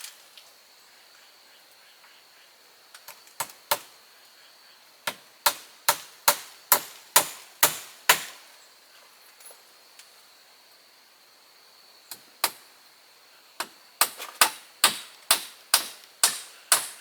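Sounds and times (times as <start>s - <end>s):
hand tool striking wood: 5.1s - 8.4s, 13.6s - 17.0s.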